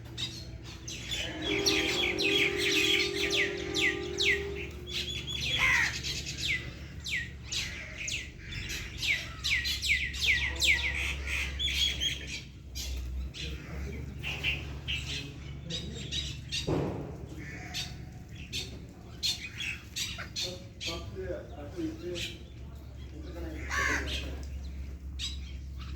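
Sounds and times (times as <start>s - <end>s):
small birds chirping: 0.0s - 25.9s
low harsh bird call: 0.1s - 12.4s.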